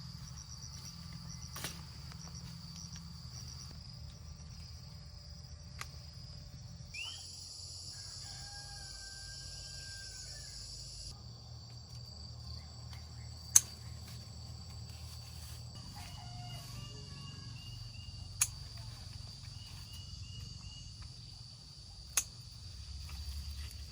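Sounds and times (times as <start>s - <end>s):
insects chirring: 0.0s - 23.9s
faint rooster crow: 7.7s - 11.1s, 15.8s - 18.1s
sharp click: 22.2s - 22.4s.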